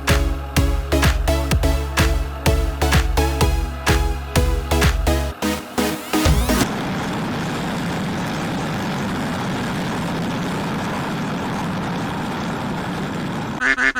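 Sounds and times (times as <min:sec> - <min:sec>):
electronic music: 0:00.0 - 0:06.8.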